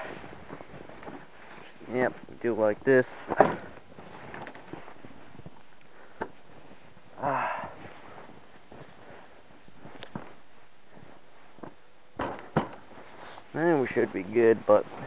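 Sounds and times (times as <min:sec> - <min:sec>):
person breathing hard: 0:05.9 - 0:06.4, 0:07.1 - 0:08.3
grunt-like breath: 0:07.2 - 0:07.8.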